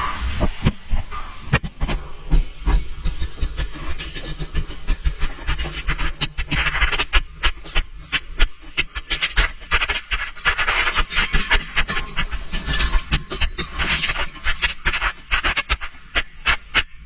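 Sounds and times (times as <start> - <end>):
hiss: 0.0 - 2.4
low rumble: 0.0 - 6.4.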